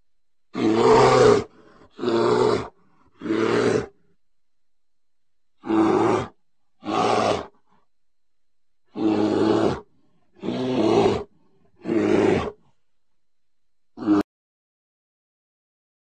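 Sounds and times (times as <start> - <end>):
bear roaring: 0.5 - 4.0, 5.6 - 7.6, 8.9 - 12.6, 14.0 - 14.3.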